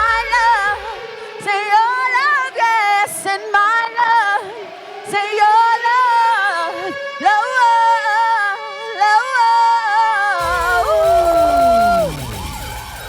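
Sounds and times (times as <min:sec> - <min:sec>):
music: 0:00.0 - 0:13.0
falling siren-like sound effect: 0:09.8 - 0:13.0.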